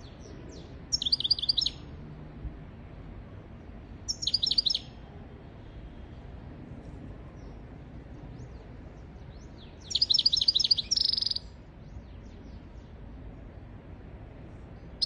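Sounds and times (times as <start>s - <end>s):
faint bird chirps: 0.0s - 1.8s, 4.1s - 5.0s, 9.4s - 13.0s
finch twittering song: 0.0s - 1.8s, 4.1s - 5.0s, 8.3s - 13.4s.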